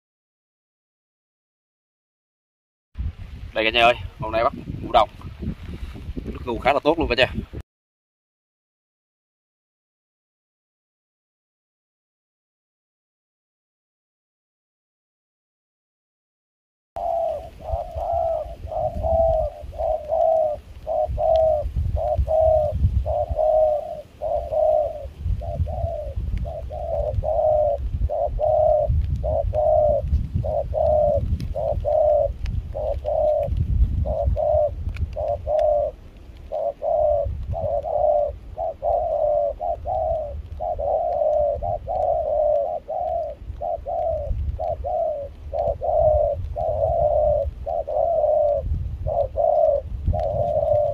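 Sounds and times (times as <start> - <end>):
low wind rumble: 3.0 - 7.6, 17.0 - 50.9
dove cooing: 17.0 - 50.9.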